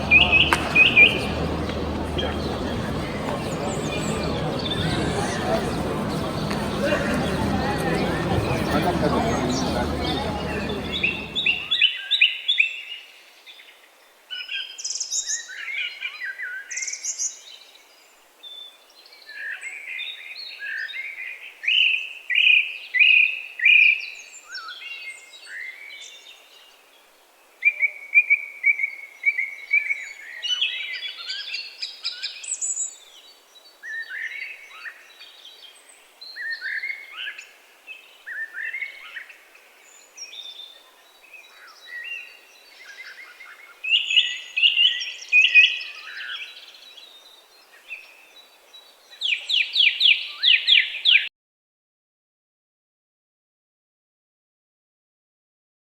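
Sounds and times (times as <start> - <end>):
songbirds singing: 0.0 - 11.7.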